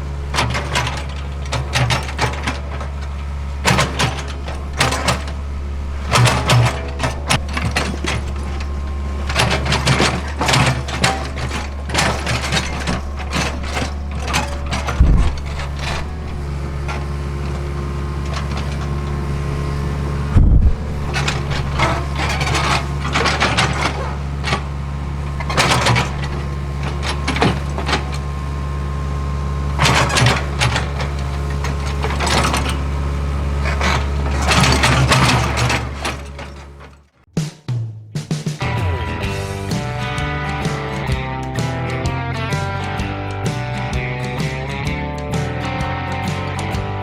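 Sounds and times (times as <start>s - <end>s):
heavy thumps: 0.0s - 37.0s
knocks and scrapes of digging: 0.0s - 37.0s
excavator engine running: 0.0s - 37.2s, 38.6s - 47.0s.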